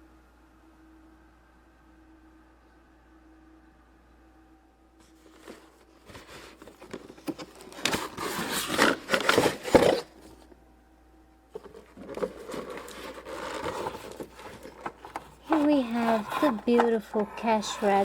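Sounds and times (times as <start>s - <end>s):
cardboard and plastic rustling: 5.0s - 10.6s, 11.5s - 18.0s.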